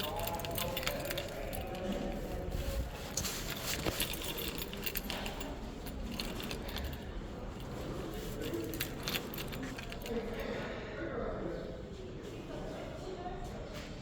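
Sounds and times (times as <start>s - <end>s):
small metal objects clinking: 0.0s - 2.2s.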